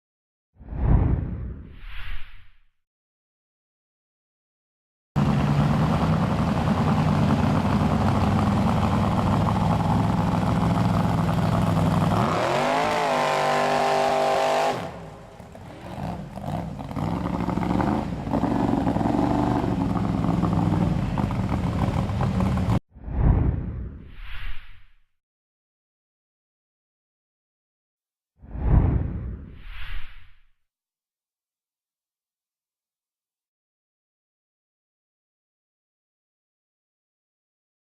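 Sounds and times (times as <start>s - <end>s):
truck engine revving: 5.2s - 22.8s.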